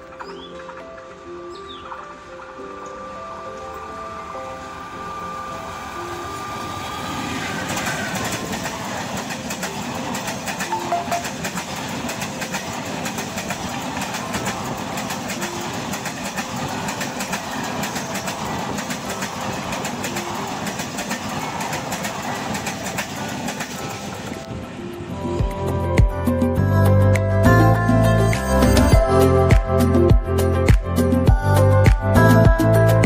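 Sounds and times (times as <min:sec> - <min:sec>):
wheels clattering over rail joints: 0:00.0 - 0:25.2
electric locomotive passing: 0:00.0 - 0:33.0
train rumble: 0:00.0 - 0:33.0.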